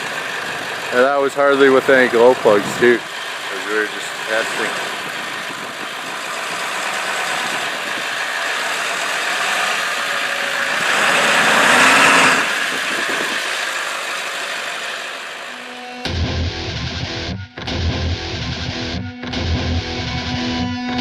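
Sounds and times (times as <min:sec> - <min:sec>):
diesel truck engine idling: 0:00.0 - 0:16.7.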